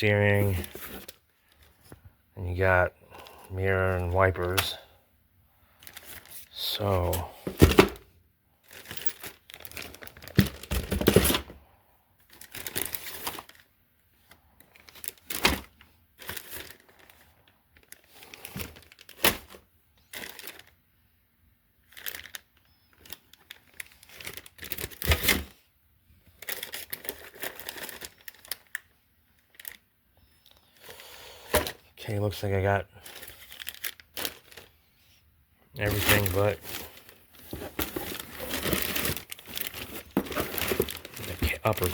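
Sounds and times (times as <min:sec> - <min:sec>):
plastic bags crinkling: 0:05.8 - 0:08.0, 0:08.6 - 0:11.4, 0:12.2 - 0:13.7, 0:14.6 - 0:20.8, 0:21.8 - 0:25.5, 0:26.4 - 0:29.8, 0:33.0 - 0:34.8, 0:35.8 - 0:41.9.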